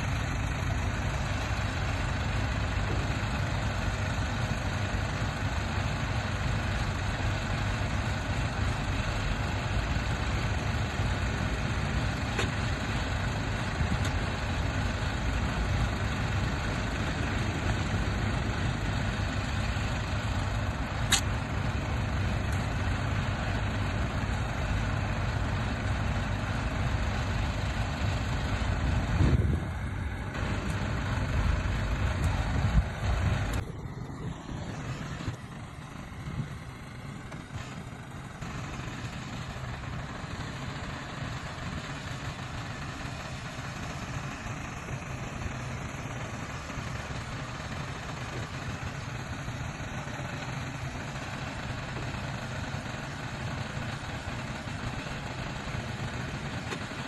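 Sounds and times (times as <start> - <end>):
heavy diesel machinery rumbling: 0.0 - 57.0
sharp click: 21.1 - 21.3.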